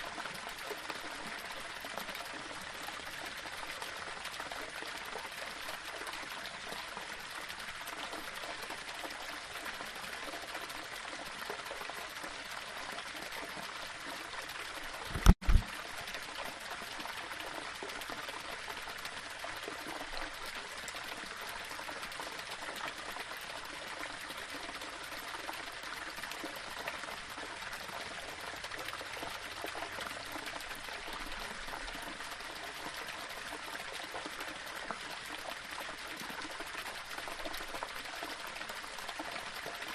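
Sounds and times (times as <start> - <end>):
waterfall over rocks: 0.0 - 39.9
low double thump: 15.1 - 15.7.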